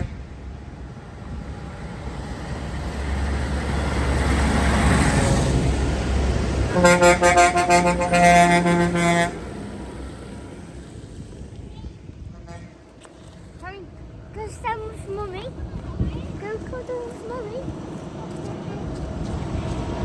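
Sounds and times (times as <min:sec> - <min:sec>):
vehicle driving past: 0:00.0 - 0:11.6
short pulsing horn honks: 0:06.7 - 0:09.6.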